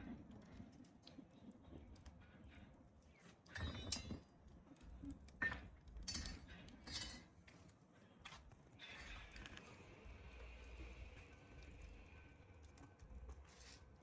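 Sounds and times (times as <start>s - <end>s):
kitchen knocks and clinks: 5.4s - 7.3s.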